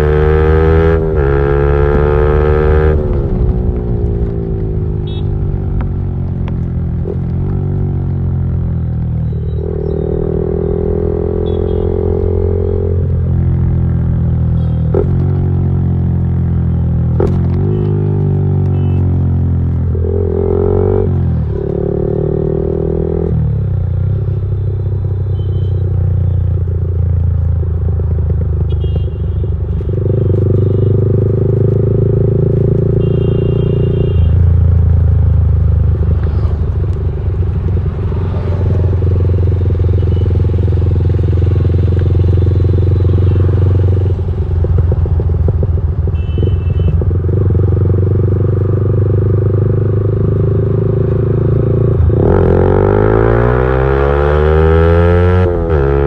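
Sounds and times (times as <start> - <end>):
loud motorcycle engine: 0.0 - 16.5, 35.8 - 56.0.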